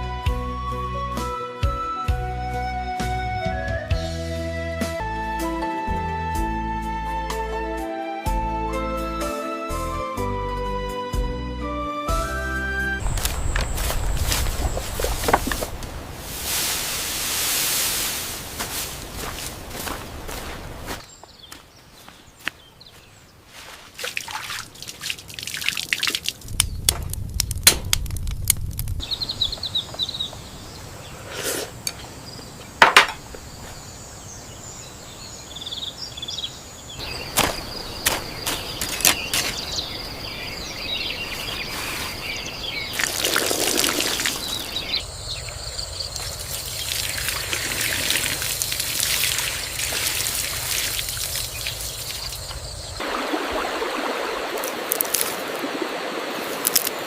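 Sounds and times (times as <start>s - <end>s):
bird calls: 20.9s - 23.7s, 29.0s - 48.4s, 49.3s - 54.6s
water trickling: 24.0s - 26.7s, 42.7s - 57.0s.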